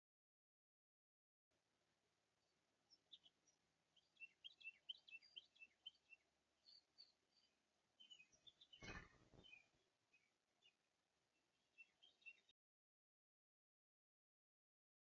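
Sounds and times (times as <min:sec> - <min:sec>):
songbirds chirping: 0:01.6 - 0:12.6.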